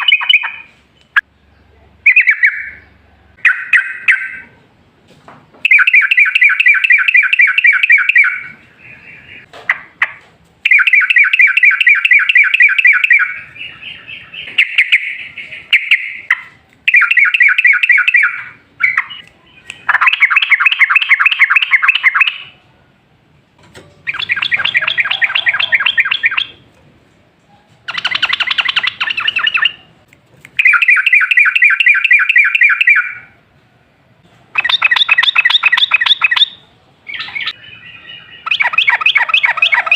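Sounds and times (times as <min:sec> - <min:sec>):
bird chattering song: 0:00.0 - 0:04.6, 0:05.7 - 0:22.6, 0:24.0 - 0:26.7, 0:27.8 - 0:30.0, 0:34.5 - 0:39.9.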